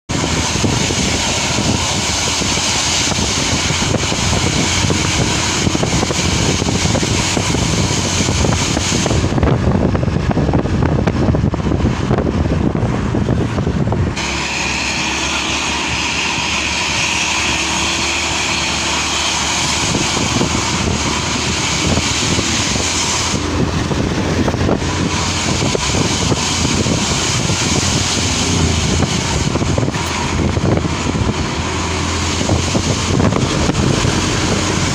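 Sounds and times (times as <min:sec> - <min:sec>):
loud jet-like exhaust rushing: 0:00.1 - 0:34.9.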